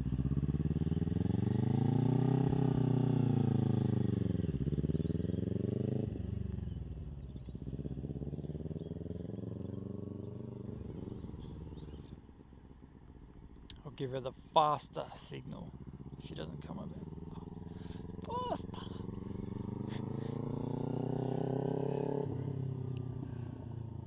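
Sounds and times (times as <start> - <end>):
motorcycle engine revving: 0.0 - 12.2, 15.7 - 24.0.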